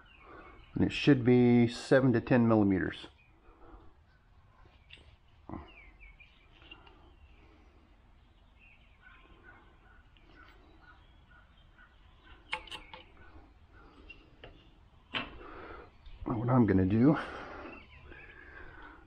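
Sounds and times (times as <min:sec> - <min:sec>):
birds chirping faintly: 0:00.0 - 0:19.0
sharp clicks: 0:12.5 - 0:13.1.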